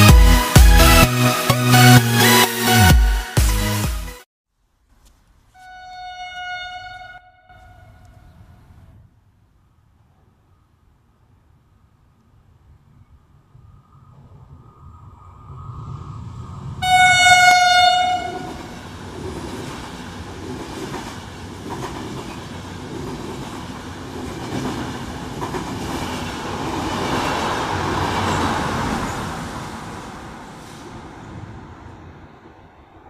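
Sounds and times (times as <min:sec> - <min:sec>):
train horn blast: 0:05.6 - 0:08.6, 0:16.8 - 0:18.7
train wheels rumbling on rails: 0:12.4 - 0:33.0.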